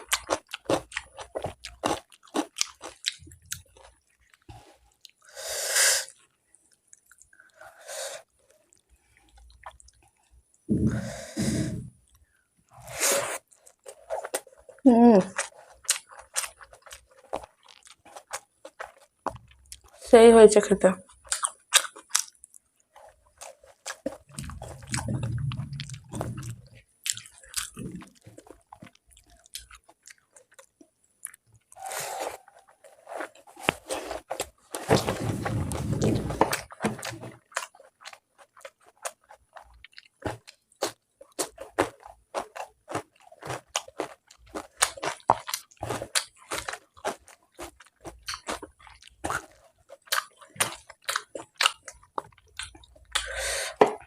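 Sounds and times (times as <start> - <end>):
chewing and mouth smacks: 6.1 - 7.5, 8.6 - 10.6, 15.3 - 20.0, 21.1 - 34.8, 36.4 - 54.0
rustling: 31.8 - 37.4.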